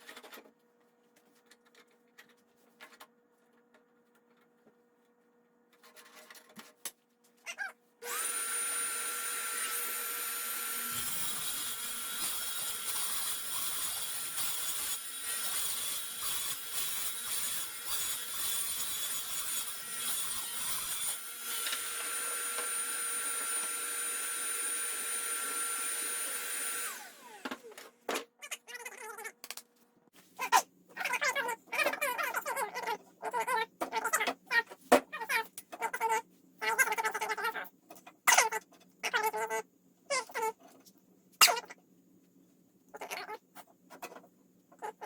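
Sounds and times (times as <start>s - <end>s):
power tool motor whining: 8.0s - 13.7s, 20.2s - 27.7s.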